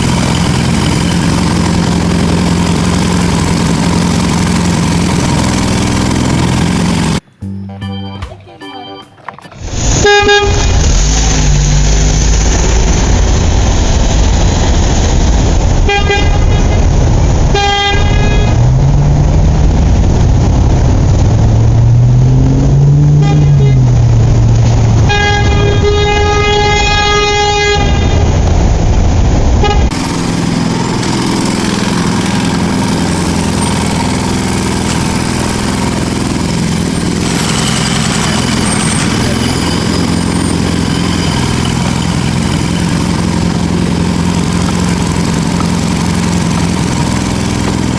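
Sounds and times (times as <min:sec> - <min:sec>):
heavy vehicle engine revving: 0:00.0 - 0:07.5, 0:09.6 - 0:47.9
vehicle horn honks: 0:09.9 - 0:10.8, 0:15.9 - 0:16.9, 0:17.5 - 0:18.6, 0:23.2 - 0:23.9, 0:25.0 - 0:28.4, 0:29.6 - 0:30.0.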